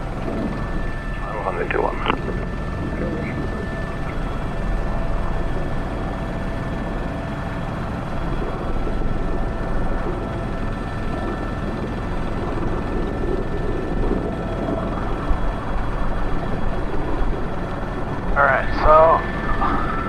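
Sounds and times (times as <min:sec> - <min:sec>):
constant whining tones: 0:00.0 - 0:20.0
helicopter rotor and turbine drone: 0:00.0 - 0:20.0.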